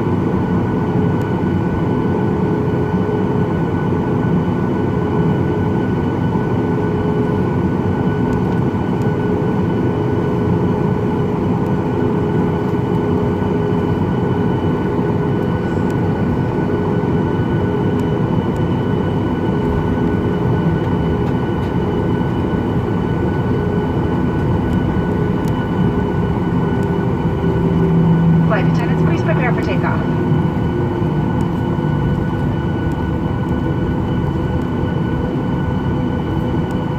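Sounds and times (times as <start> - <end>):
jet engines running low rumble: 0.0 - 36.9.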